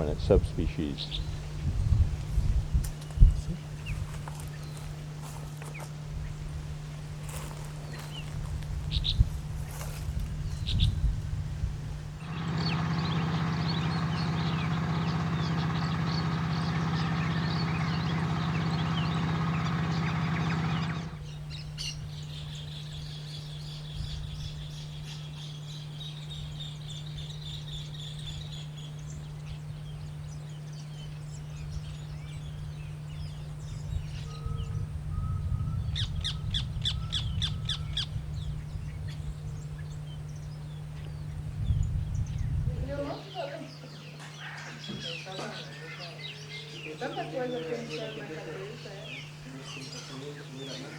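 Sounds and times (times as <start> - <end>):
birds chirping and calling: 0.0 - 50.9
steady low hum: 0.0 - 50.9
loud steady drone: 11.5 - 21.7
quick repeated bird calls: 12.2 - 26.0.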